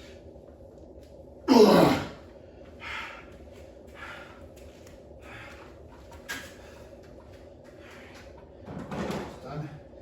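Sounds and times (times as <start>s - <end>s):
person breathing hard: 2.4s - 4.6s, 5.2s - 5.9s.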